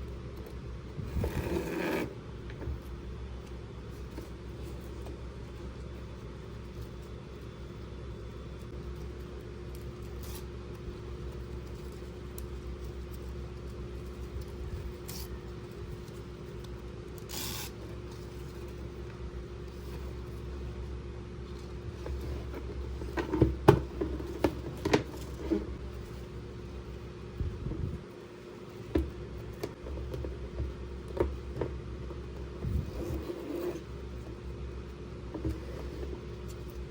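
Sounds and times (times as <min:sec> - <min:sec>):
low background hum: 0:00.0 - 0:36.9.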